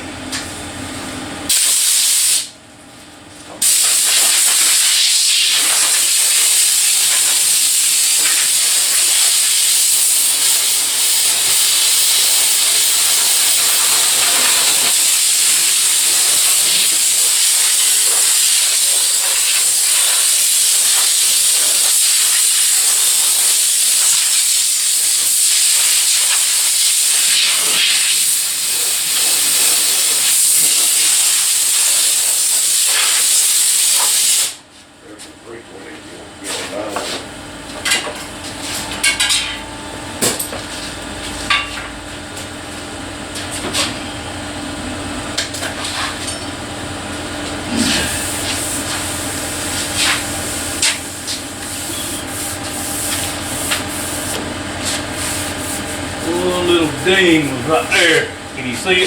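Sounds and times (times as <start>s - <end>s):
sander hissing: 3.8s - 34.1s, 47.7s - 59.0s.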